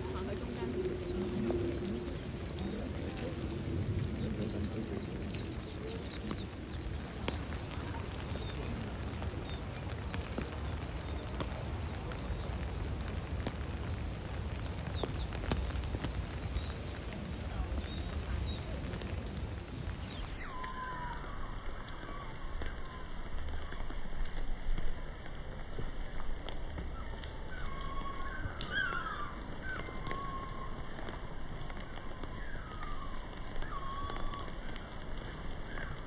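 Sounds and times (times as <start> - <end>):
birds chirping: 0.0 - 21.4.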